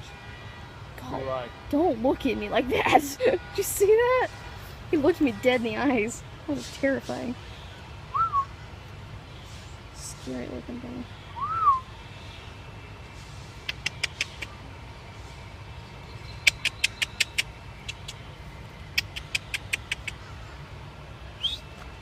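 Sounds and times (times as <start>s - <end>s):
whistle-like rising note: 11.4s - 11.8s
sharp clicks: 13.7s - 14.5s, 19.0s - 20.2s.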